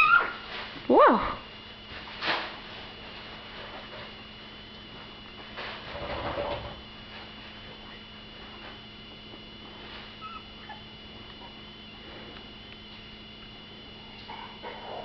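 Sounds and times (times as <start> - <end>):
steady electrical hum: 0.0 - 15.0
puppies squeaking: 10.2 - 11.6.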